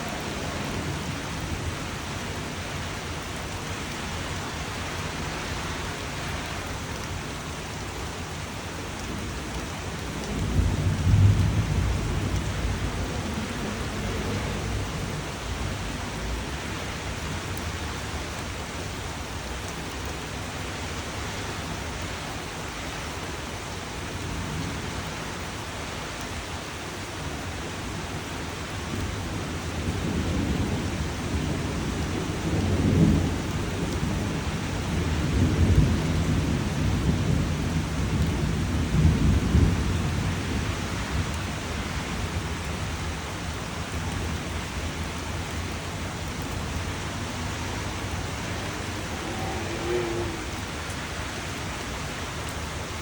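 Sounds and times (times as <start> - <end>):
thunder rumbling: 0.0 - 2.9, 9.2 - 17.2, 43.9 - 52.2
steady rain: 0.0 - 53.0.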